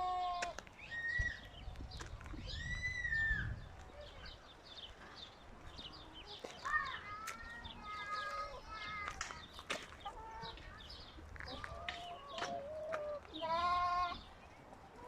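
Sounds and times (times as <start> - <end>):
chickens clucking: 7.7 - 15.0.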